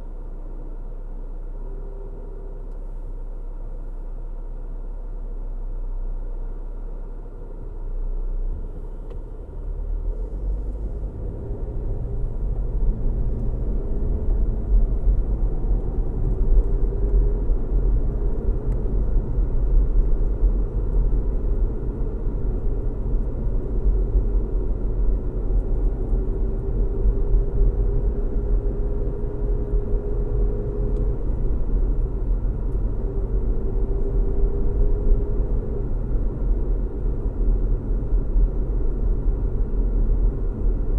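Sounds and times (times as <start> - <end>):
car tyre and engine rumble: 0.0 - 40.9.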